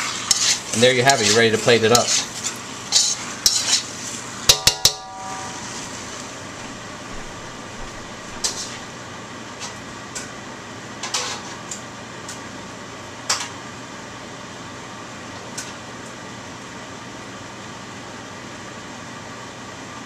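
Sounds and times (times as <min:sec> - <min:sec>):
fan hum: 0:00.0 - 0:20.0
utensils clinking on wok and plate: 0:04.5 - 0:05.8.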